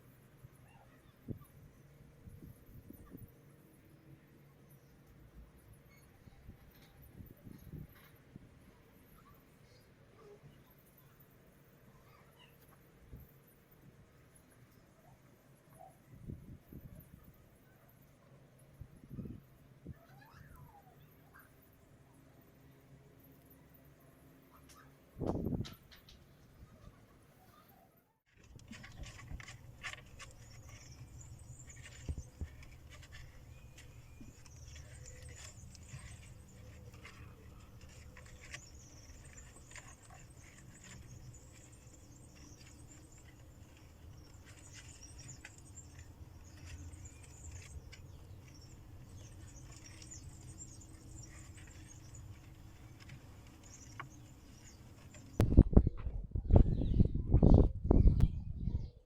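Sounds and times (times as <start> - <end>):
clicks and rustles: 24.6 - 27.0, 28.3 - 55.8.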